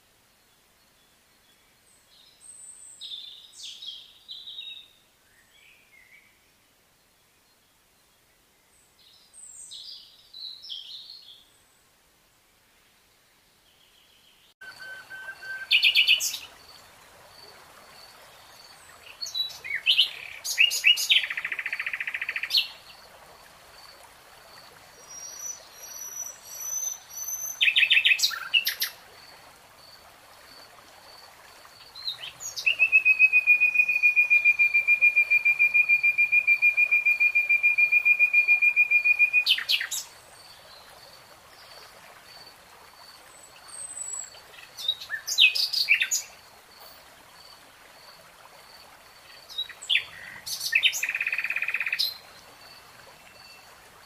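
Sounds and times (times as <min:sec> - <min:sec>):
faint high repeating call: 0:14.6 - 0:16.0.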